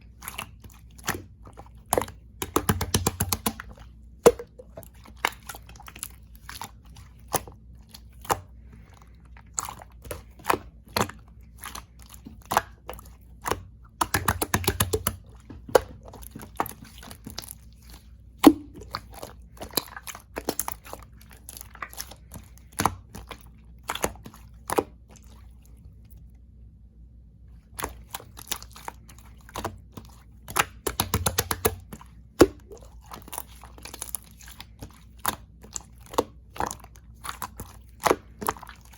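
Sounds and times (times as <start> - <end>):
slime squished by hand: 0.1 - 26.2, 27.6 - 38.9.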